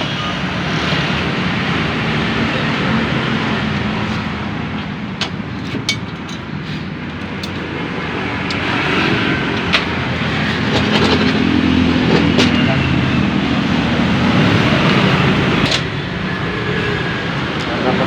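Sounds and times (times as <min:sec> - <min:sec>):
passing road traffic: 0:00.0 - 0:18.0.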